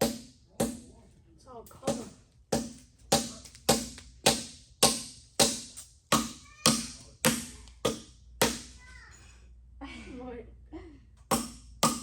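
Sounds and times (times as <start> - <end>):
hammer tapping metal: 0.0 - 0.9, 1.8 - 8.8, 11.3 - 12.0.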